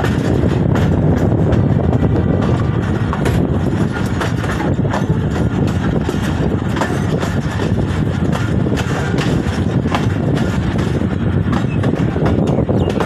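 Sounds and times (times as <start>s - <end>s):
clacks and rattles: 0.0s - 13.0s
train rumbling along track: 0.0s - 13.0s.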